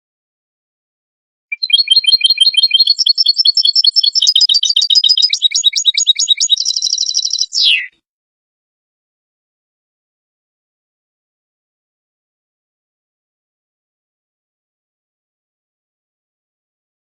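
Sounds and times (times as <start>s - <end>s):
goldfinch twittering song: 1.5s - 7.9s.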